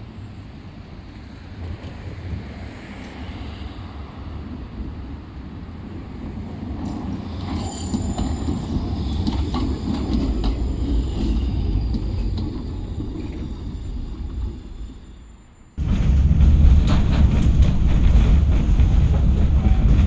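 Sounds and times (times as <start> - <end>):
tram rumbling past: 0.0 - 20.0
high wheel squeal: 7.3 - 15.7.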